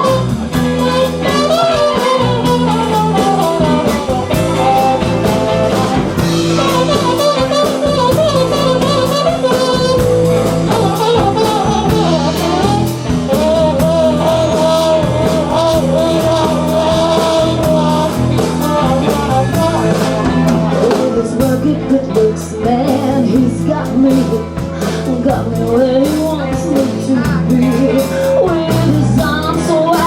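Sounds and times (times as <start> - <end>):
drum beat: 0.0 - 21.7
live rock and roll band: 0.0 - 30.0
person singing: 0.0 - 30.0.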